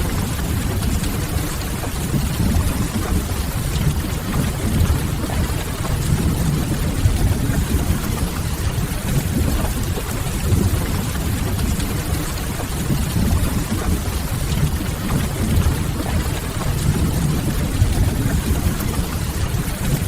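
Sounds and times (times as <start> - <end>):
steady rain: 0.0 - 20.0
deep even rumble: 13.1 - 19.6.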